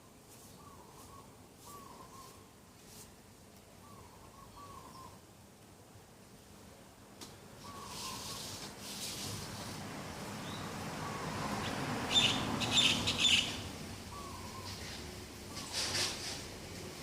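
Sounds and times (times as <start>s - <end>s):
soft high bird calls: 0.4s - 2.5s, 3.8s - 5.2s, 7.6s - 8.6s, 10.5s - 16.0s
harsh bird calls: 10.5s - 16.2s.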